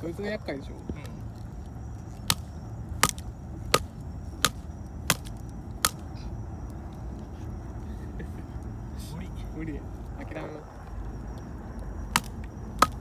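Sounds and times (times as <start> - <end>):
tool knocking into log: 12.2 - 13.0.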